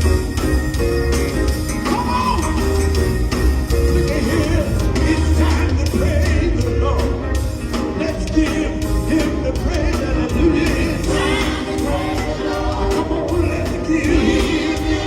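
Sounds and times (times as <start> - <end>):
band with bass and drums: 0.0 - 15.0
singers in harmony: 8.2 - 15.0.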